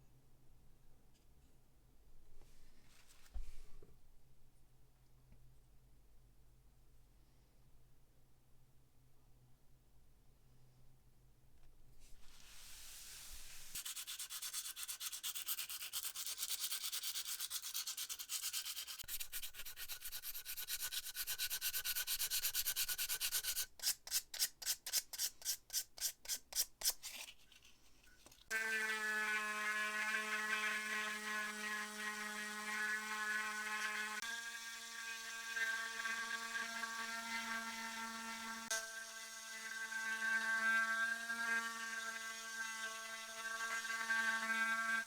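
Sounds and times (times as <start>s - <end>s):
hand sanding metal: 12.4s - 27.3s
electric rotary tool whining: 28.5s - 45.0s.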